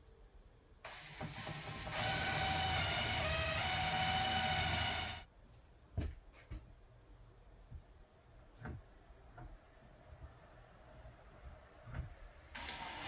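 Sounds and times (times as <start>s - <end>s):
power drill whining: 0.9s - 5.2s, 12.6s - 13.0s.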